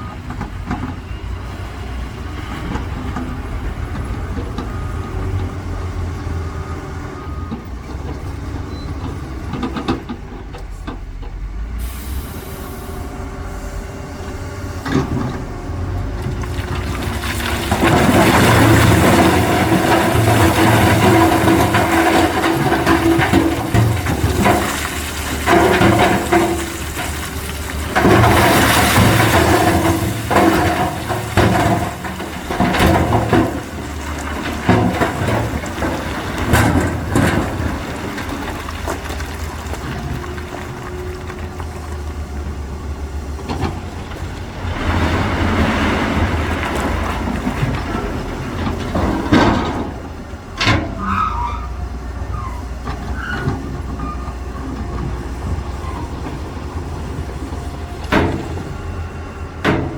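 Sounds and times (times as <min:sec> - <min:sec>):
excavator diesel engine rumble: 0:00.0 - 0:59.9
rush of spilling material: 0:16.2 - 0:42.0, 0:44.2 - 0:48.8
metal clanks and knocks: 0:16.3 - 0:41.0, 0:43.4 - 0:51.6, 0:57.9 - 0:59.0, 0:59.6 - 0:59.9.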